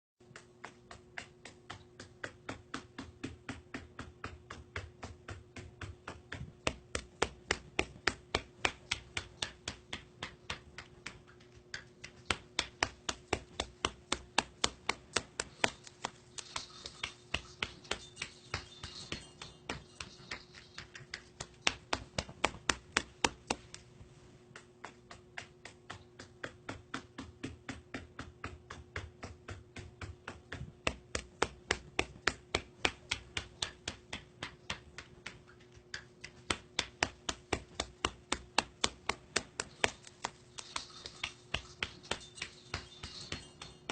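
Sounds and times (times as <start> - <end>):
sharp rhythmic clicking: 0.2 - 43.9.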